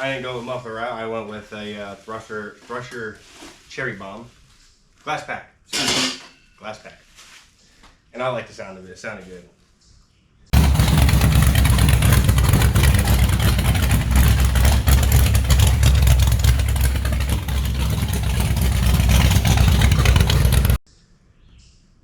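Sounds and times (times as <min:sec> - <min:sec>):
truck engine deep exhaust note: 0:10.6 - 0:20.8.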